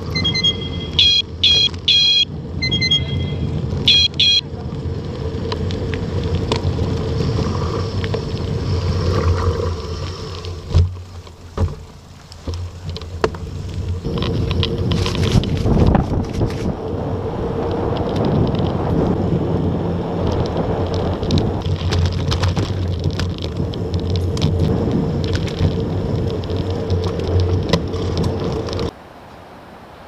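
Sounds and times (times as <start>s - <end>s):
vehicle low rumble: 0.0s - 30.0s
car horn beeps: 0.1s - 4.5s
wind noise: 12.4s - 29.0s.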